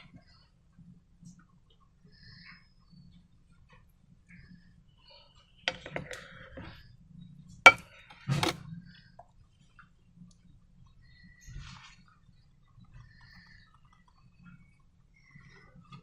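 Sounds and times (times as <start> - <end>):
sharp clicks and knocks: 5.7 - 6.3.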